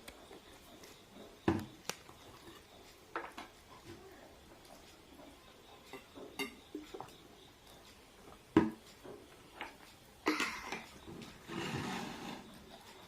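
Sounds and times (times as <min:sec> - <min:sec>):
dishes and cutlery clicking: 0:05.8 - 0:07.0.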